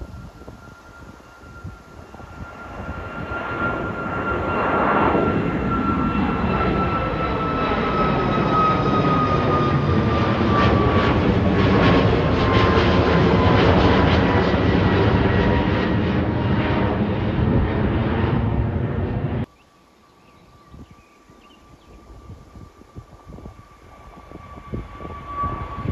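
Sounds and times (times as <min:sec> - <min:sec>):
airliner engines taking off: 0:00.0 - 0:25.9.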